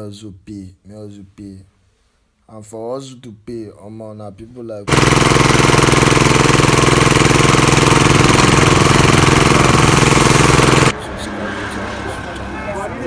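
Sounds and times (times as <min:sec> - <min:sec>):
small engine running: 0:04.9 - 0:11.0.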